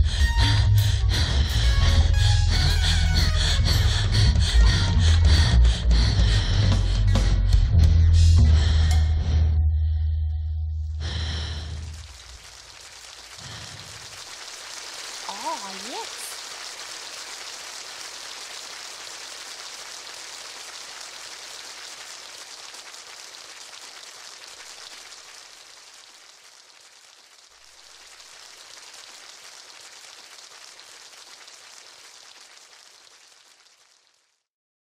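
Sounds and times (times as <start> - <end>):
steady hiss: 11.0 - 34.1.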